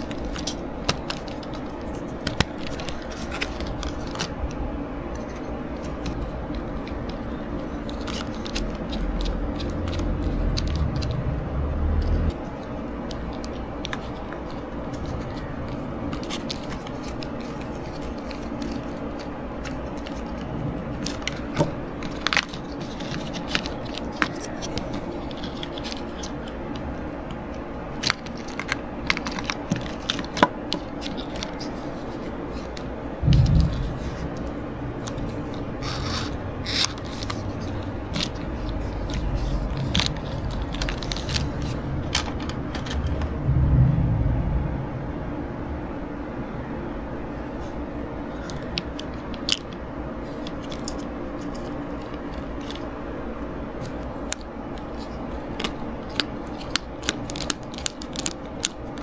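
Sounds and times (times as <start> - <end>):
steady low hum: 0.0 - 18.7, 32.0 - 48.8.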